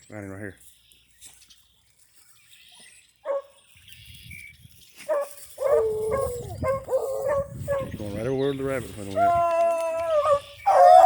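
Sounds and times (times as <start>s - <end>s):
hounds baying: 5.0s - 8.0s, 9.2s - 11.0s.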